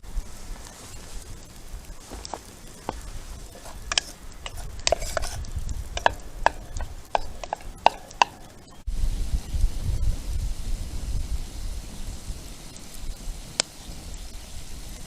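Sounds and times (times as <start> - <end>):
cookware knocking and clinking: 2.8 - 5.4, 6.0 - 8.6.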